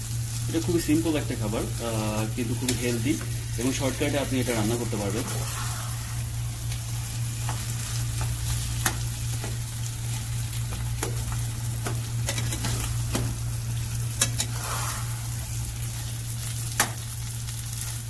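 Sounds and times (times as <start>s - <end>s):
potatoes sizzling in oil: 0.0s - 18.0s
steady low hum: 0.0s - 18.0s
spatula scraping a pan: 14.2s - 15.3s.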